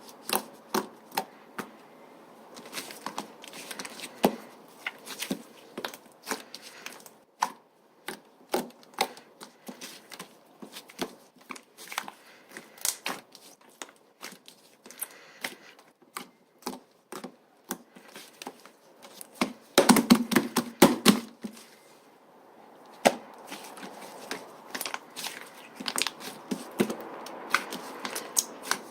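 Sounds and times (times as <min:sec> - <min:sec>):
slime squished by hand: 0:23.0 - 0:28.9.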